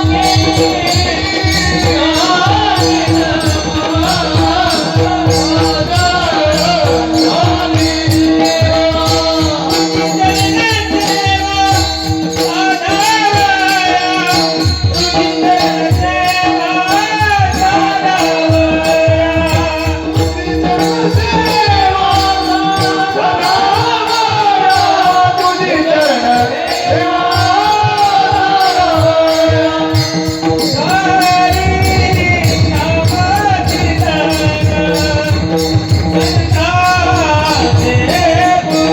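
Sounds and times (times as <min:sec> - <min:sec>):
man singing: 0:00.0 - 0:38.9
small hand cymbals jingling: 0:00.0 - 0:38.9.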